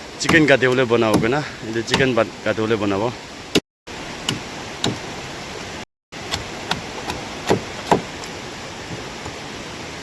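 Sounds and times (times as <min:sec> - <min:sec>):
blade chopping chicken on wood: 0:06.3 - 0:08.2.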